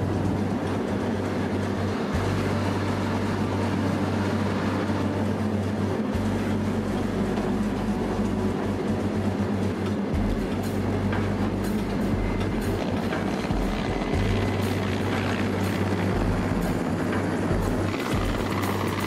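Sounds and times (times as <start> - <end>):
moving train rumble: 0.0 - 19.0.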